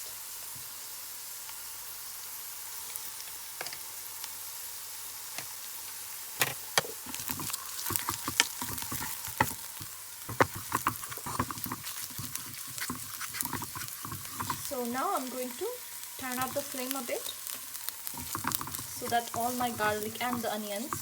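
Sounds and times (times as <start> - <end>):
onions sizzling in hot oil: 0.0 - 21.0
spoon scraping against pan: 7.0 - 21.0.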